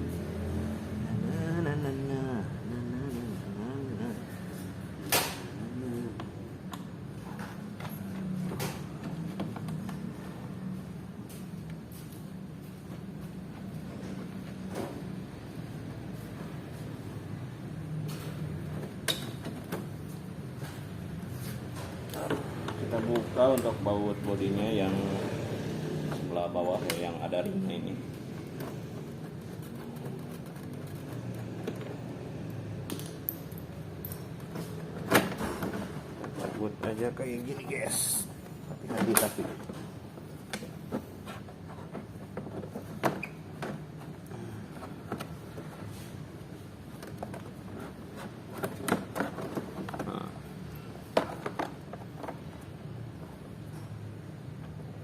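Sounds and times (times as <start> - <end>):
plastic panels clicking and scraping: 28.1 - 33.3, 38.8 - 53.0.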